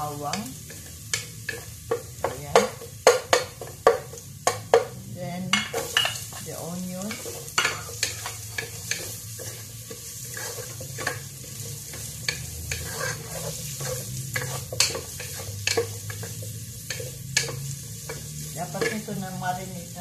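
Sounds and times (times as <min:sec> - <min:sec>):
onion and garlic sizzling in oil: 0:00.0 - 0:20.0
wooden spatula scraping a pan: 0:05.6 - 0:19.7.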